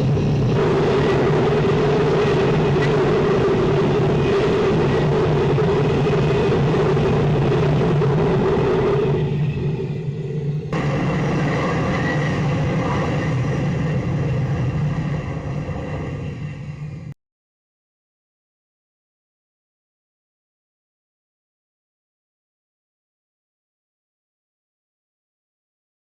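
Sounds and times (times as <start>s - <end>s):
jet engine roaring: 0.0s - 17.2s.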